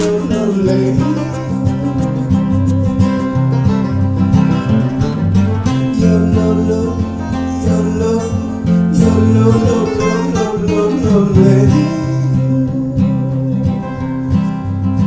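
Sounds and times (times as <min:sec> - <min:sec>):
banjo playing: 0:00.0 - 0:05.9
acoustic guitar strumming: 0:00.0 - 0:15.0.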